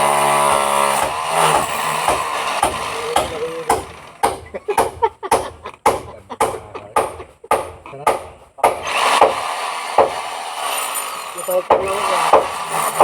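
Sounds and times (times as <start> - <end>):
hammer drill running: 0.0 - 4.2, 8.8 - 13.0
hammer knocking on concrete: 0.4 - 9.4, 10.0 - 10.2, 11.7 - 13.0.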